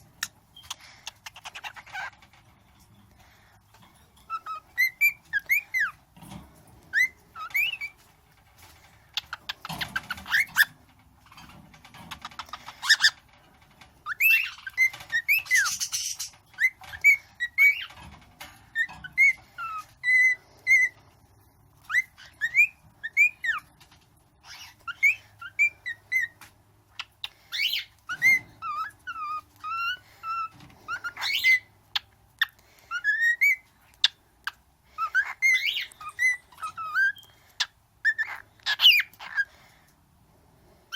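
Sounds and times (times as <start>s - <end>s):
cockatiel whistling: 4.3s - 6.0s, 6.9s - 8.0s, 14.0s - 17.9s, 21.8s - 23.7s, 24.5s - 26.4s, 27.5s - 31.7s, 32.9s - 34.1s, 35.0s - 37.4s
raspy bird calls: 9.0s - 13.3s, 14.0s - 18.0s, 24.4s - 39.8s.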